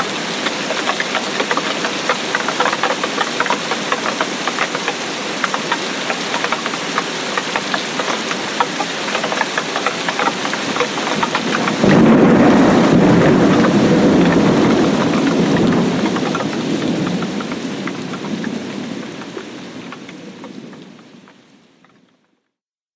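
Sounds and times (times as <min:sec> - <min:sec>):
rain drops tapping: 0:00.0 - 0:22.5
thunder rumbling: 0:10.7 - 0:21.0.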